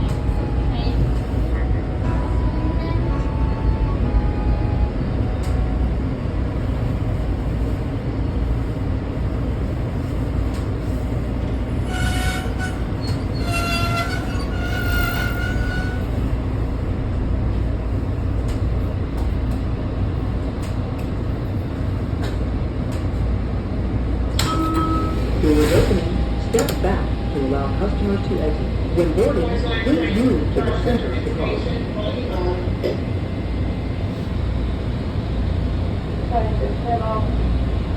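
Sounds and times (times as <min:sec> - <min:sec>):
train rumbling: 0:00.0 - 0:37.9
metallic squeals: 0:11.8 - 0:16.1.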